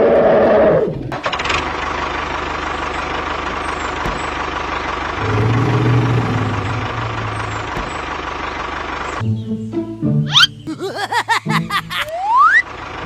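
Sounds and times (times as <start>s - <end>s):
rattling vehicle engine: 1.2s - 9.2s, 12.6s - 13.0s
deep drone: 4.9s - 9.2s.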